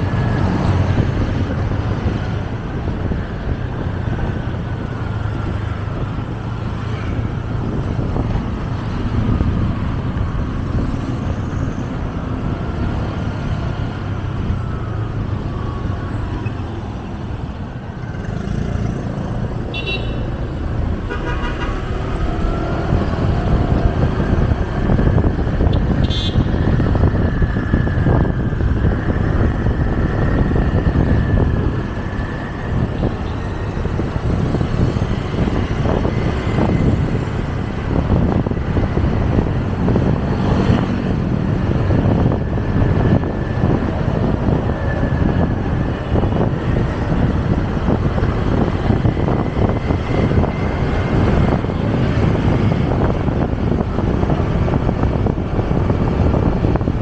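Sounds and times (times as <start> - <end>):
road rumble: 0.0 - 57.0
wind on microphone: 0.0 - 57.0
motorcycle engine: 18.2 - 26.9
vehicle horn beeps: 19.7 - 22.6, 26.0 - 26.6.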